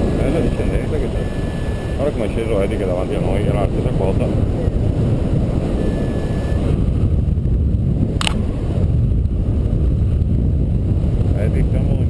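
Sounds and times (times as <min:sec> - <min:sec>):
wind rushing over microphone: 0:00.0 - 0:12.0
sharp click: 0:08.2 - 0:08.4.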